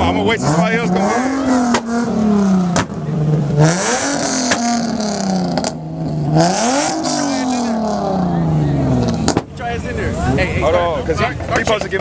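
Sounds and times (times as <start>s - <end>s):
car engine revving: 0.0s - 12.0s
sharp exhaust cracks: 0.6s - 8.3s.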